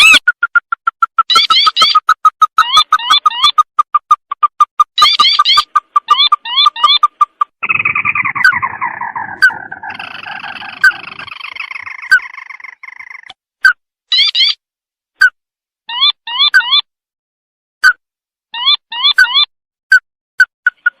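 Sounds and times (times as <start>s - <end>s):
crake calling: 0.0s - 13.3s.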